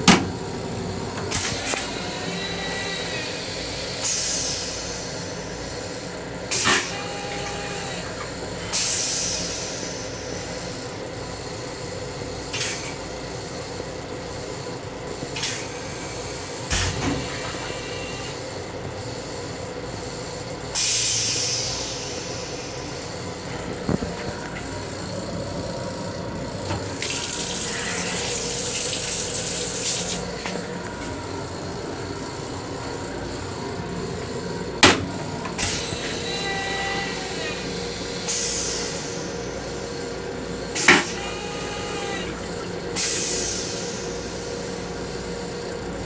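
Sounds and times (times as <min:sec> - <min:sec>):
train running rumble: 0:20.8 - 0:43.8.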